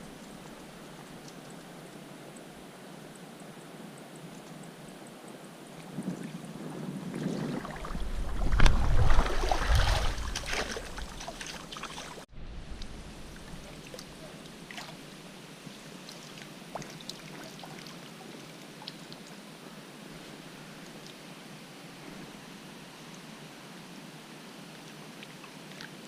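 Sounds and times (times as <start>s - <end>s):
river water running: 0.0s - 26.0s
water splashing: 7.0s - 15.2s, 16.0s - 19.3s
low rumble: 7.6s - 11.4s, 12.3s - 14.3s.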